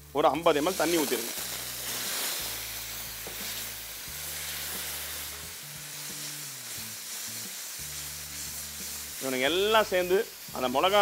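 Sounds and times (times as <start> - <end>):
masala sizzling and hissing: 0.0 - 11.0.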